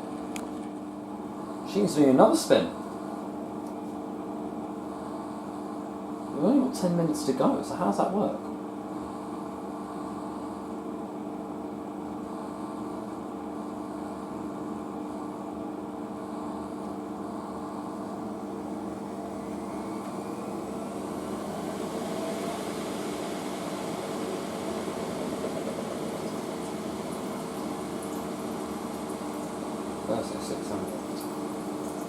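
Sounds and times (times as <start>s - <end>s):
washing machine spinning: 5.5s - 32.0s.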